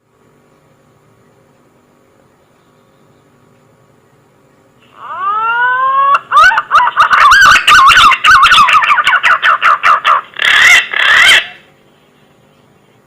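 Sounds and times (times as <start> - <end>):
pigeon calling with whistles: 5.0 - 11.6.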